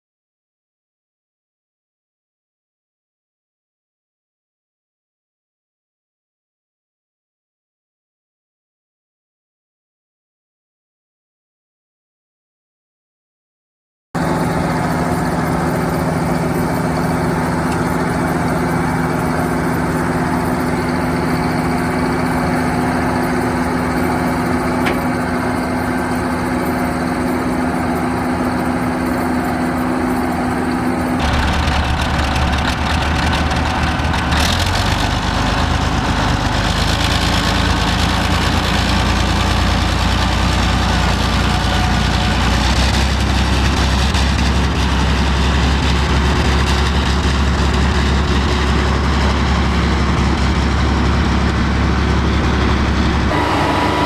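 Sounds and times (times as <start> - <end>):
excavator diesel engine running: 14.2 - 54.0.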